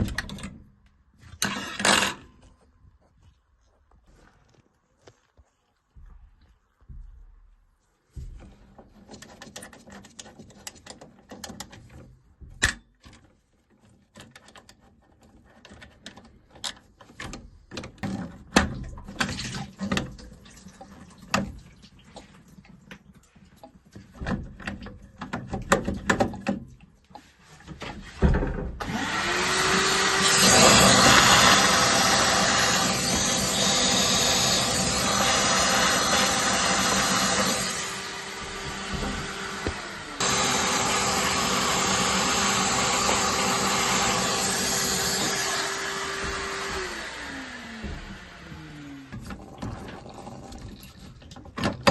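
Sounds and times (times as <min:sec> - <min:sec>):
small electric motor running: 0:28.9 - 0:49.0.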